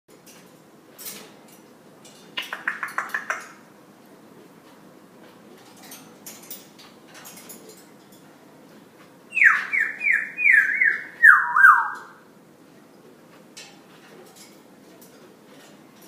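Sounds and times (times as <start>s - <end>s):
parrot whistling descending notes: 9.3s - 12.2s.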